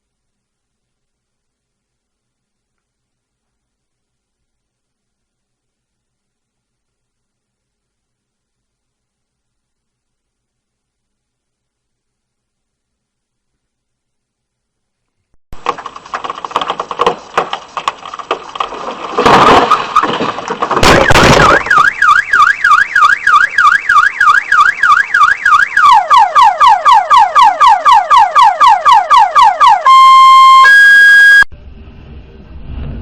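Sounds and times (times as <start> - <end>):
loud bangs: 18.7 - 23.6
car alarm: 20.8 - 31.5.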